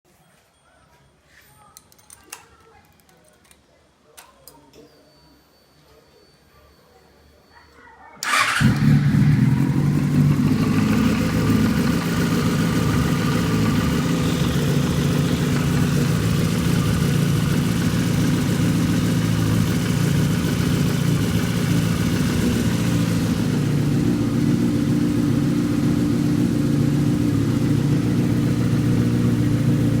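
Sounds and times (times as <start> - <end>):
motorcycle engine idling: 8.2 - 30.0.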